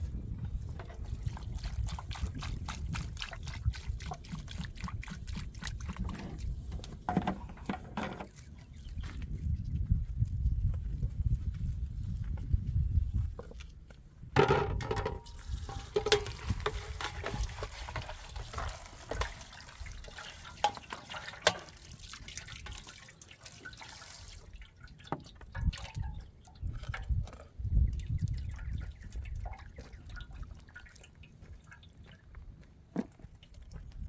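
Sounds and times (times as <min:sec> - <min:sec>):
water pouring and splashing: 0:00.0 - 0:09.5, 0:14.4 - 0:34.0
drips and clicks: 0:14.8 - 0:32.2.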